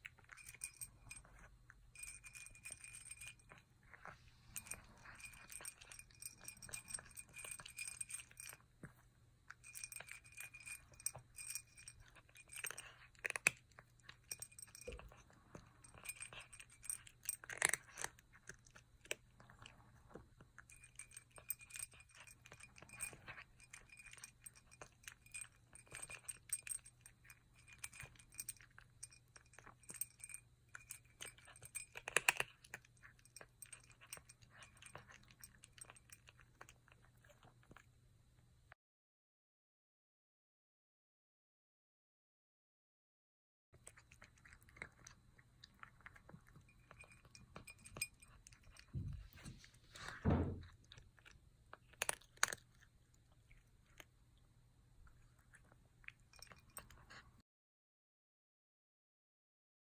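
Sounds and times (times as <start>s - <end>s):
kitten crunching kibble: 0.0s - 38.5s, 43.8s - 57.4s
metallic jingling: 0.2s - 8.6s, 9.5s - 18.1s, 20.7s - 36.4s, 46.5s - 49.5s.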